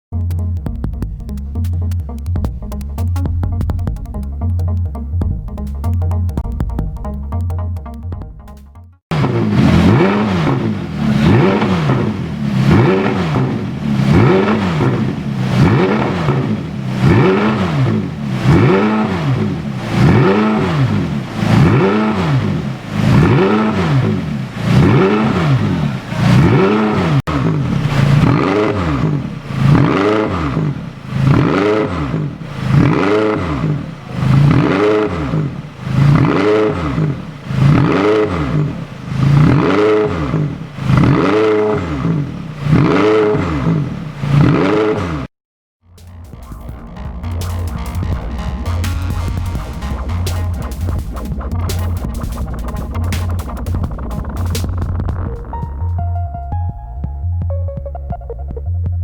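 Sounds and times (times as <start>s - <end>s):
car engine revving: 9.1s - 56.0s.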